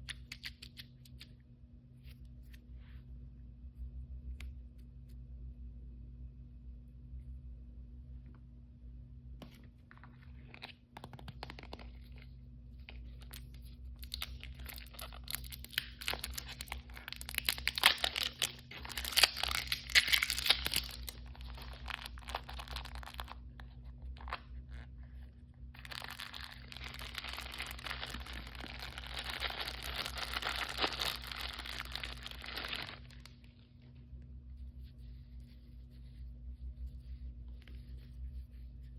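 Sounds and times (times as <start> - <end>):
packaging torn and crinkled: 14.0 - 23.4, 25.8 - 33.4.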